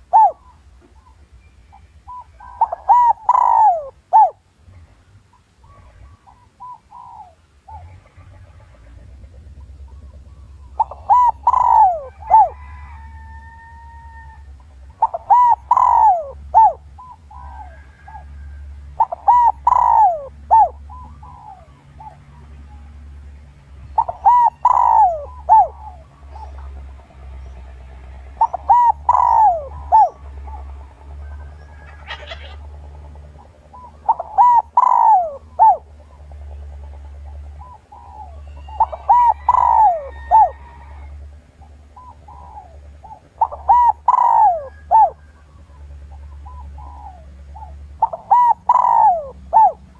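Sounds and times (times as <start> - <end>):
dove cooing: 0.0 - 49.9
steady low hum: 0.0 - 49.9.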